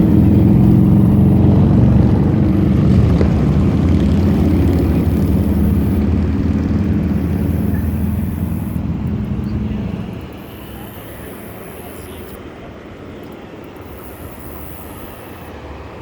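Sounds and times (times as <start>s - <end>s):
engine pulsing rumble: 0.0s - 16.0s.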